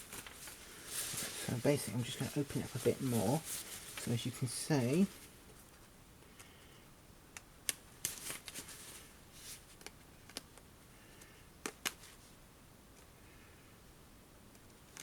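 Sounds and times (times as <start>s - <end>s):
fabric rustling: 0.0s - 5.7s, 8.0s - 9.8s.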